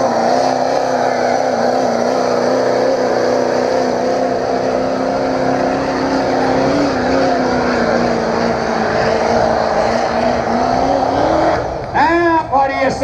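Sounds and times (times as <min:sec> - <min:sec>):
diesel engine at high revs: 0:00.0 - 0:13.0.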